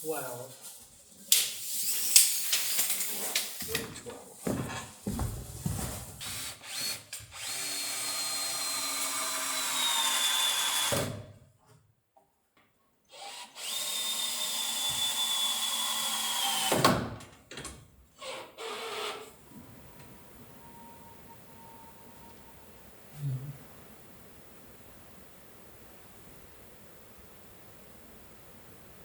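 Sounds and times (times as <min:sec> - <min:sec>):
power tool motor whine: 0:06.2 - 0:11.0, 0:13.2 - 0:16.8.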